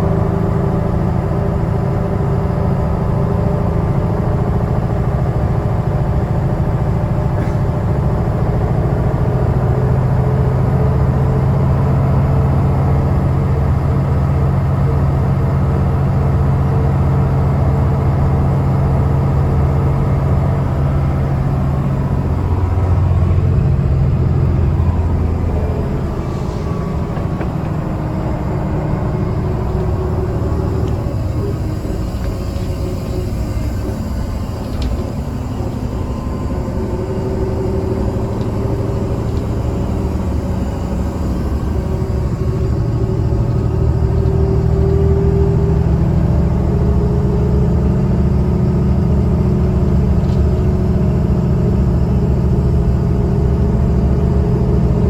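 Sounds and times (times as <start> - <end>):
bus diesel engine humming: 0.0 - 55.0.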